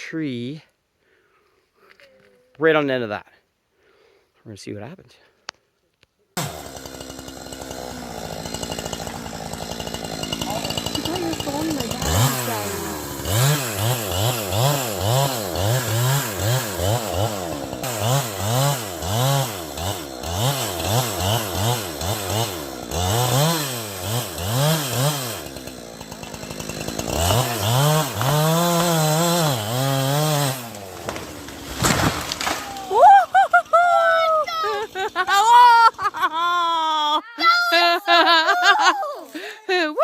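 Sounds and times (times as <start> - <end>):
chainsaw cutting wood: 6.4 - 36.4, 39.2 - 39.6.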